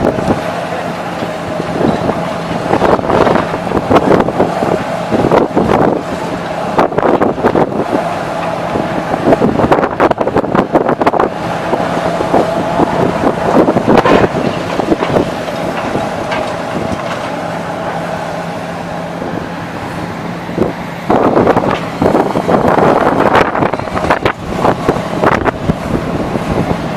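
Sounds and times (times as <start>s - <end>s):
heavy diesel engine running: 0.0s - 26.9s
wind buffeting microphone: 0.0s - 26.9s
debris crackling and knocking: 13.6s - 17.4s.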